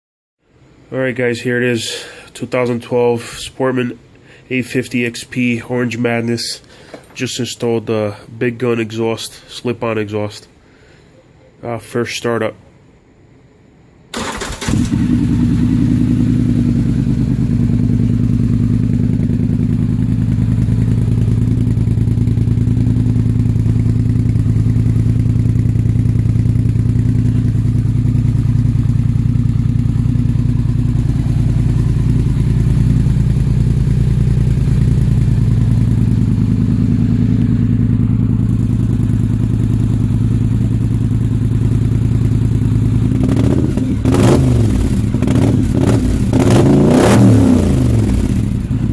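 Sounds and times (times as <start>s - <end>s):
atv engine starting and idling: 14.1s - 48.9s.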